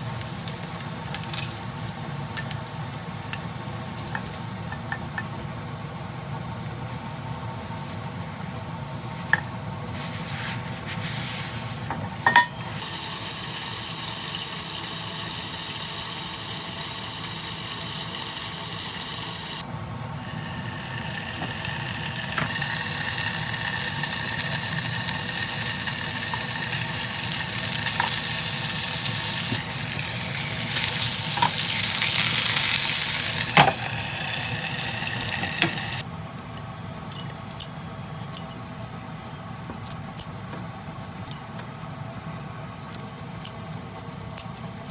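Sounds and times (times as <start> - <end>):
meat sizzling in a pan: 12.8 - 36.0
utensils clicking and tapping: 35.2 - 38.6.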